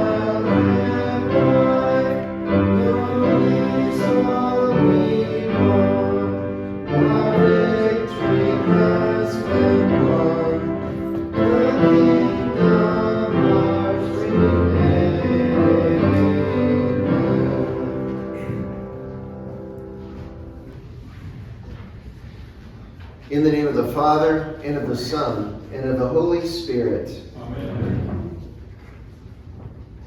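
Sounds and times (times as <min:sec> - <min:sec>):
hymn sung with accompaniment: 0:00.0 - 0:19.6.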